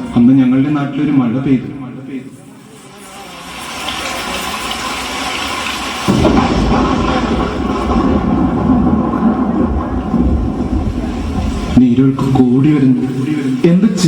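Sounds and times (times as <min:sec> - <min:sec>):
rain and rushing water: 0:02.8 - 0:14.0
heavy deep rush of water: 0:03.3 - 0:14.0.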